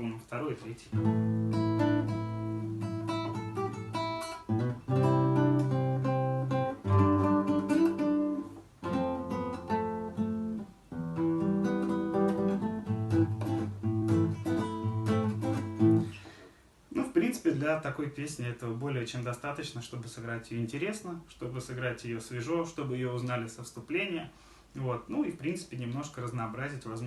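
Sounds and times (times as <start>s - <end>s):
acoustic guitar fingerpicking: 0.9s - 16.4s.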